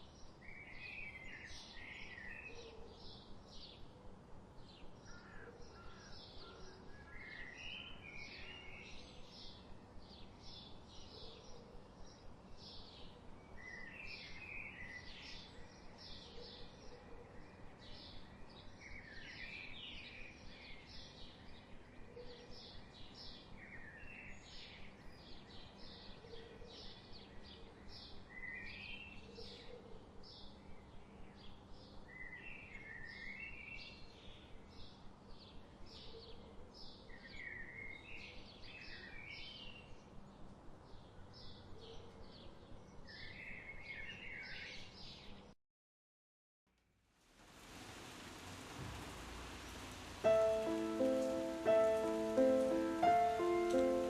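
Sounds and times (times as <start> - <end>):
faint background hiss: 46.8 - 54.0
birds chirping: 47.8 - 54.0.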